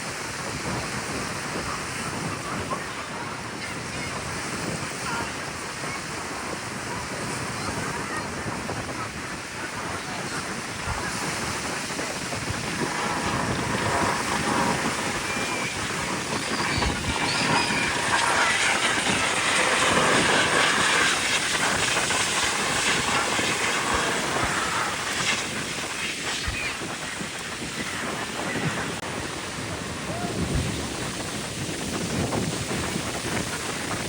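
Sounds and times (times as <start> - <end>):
aircraft flying past: 10.3 - 34.0.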